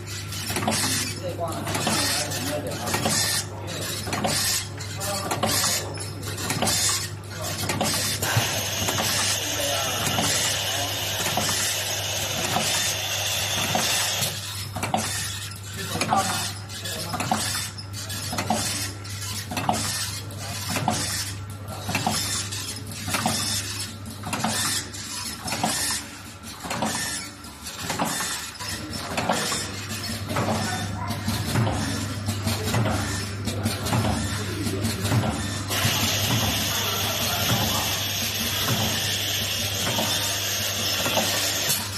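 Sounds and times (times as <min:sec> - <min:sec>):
machine clacking and clattering: 0:00.0 - 0:41.9
machine humming: 0:08.1 - 0:14.6.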